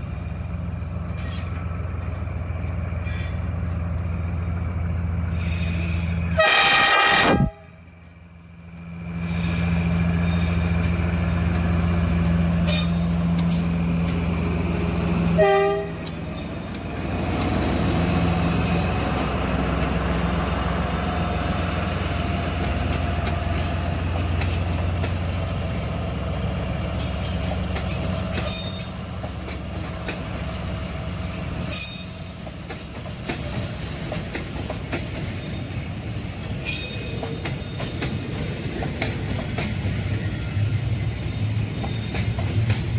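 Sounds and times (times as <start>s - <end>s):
locomotive engine droning: 0.0s - 42.9s
train horn toot: 6.3s - 7.8s, 15.4s - 16.1s
carriages clattering over rail joints: 22.6s - 25.3s, 26.9s - 30.7s, 31.6s - 35.8s, 36.4s - 40.3s, 41.6s - 42.9s.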